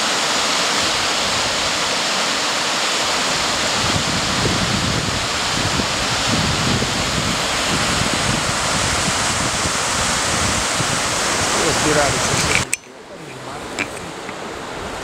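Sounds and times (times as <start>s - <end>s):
wind buffeting microphone: 3.2s - 15.0s.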